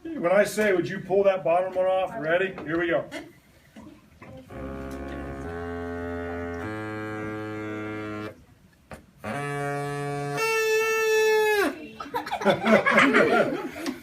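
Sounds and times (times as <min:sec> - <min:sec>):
straw oboe reedy notes: 0:04.5 - 0:08.4, 0:09.2 - 0:11.8.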